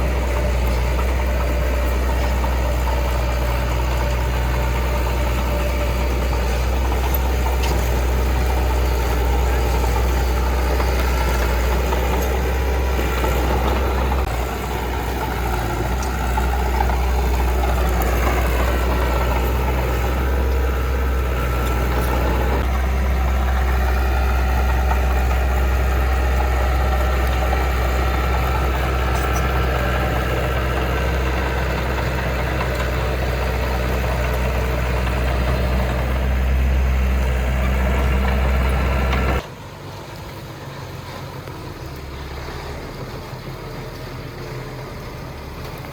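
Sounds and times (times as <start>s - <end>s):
diesel engine humming: 0.0s - 45.9s.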